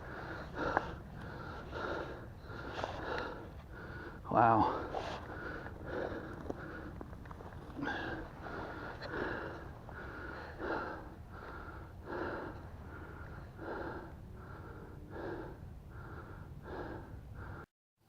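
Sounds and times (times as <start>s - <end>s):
man breathing heavily: 0.0s - 17.7s.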